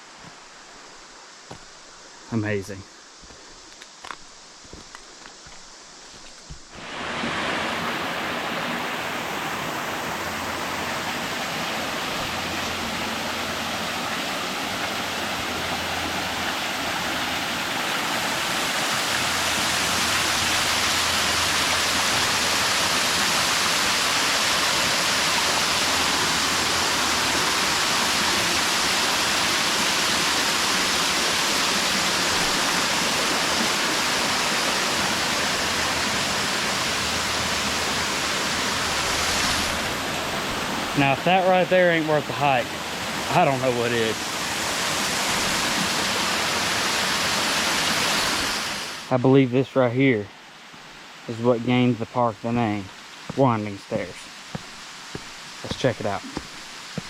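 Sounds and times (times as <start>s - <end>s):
waterfall rushing: 6.7s - 49.2s, 50.6s - 57.0s.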